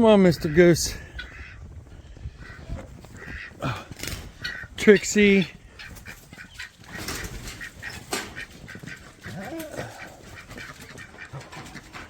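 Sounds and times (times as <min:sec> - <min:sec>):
clicking and crunching noises: 0:01.0 - 0:12.0
goose honking: 0:04.3 - 0:12.0.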